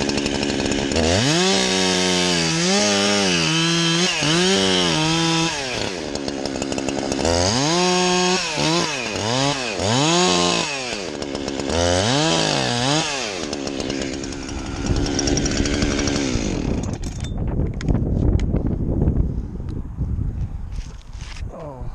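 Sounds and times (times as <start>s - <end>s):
chainsaw revving: 0.0s - 17.1s.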